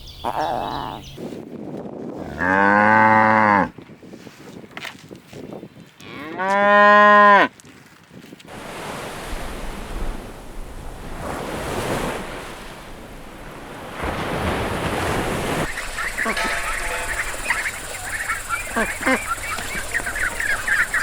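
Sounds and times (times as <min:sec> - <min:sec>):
cow mooing: 0:02.2 - 0:03.7, 0:06.0 - 0:07.5.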